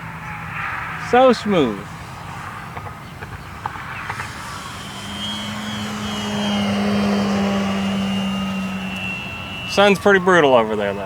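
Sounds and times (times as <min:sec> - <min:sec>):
model plane motor humming: 0:01.2 - 0:11.0
faint high-pitched whine: 0:03.7 - 0:11.0.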